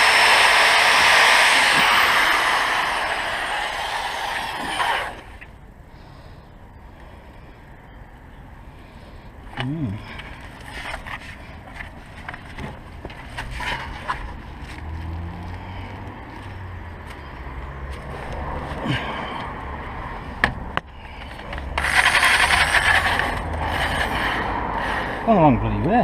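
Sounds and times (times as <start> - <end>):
loud dense rasping: 0.0 - 5.4, 21.1 - 25.3.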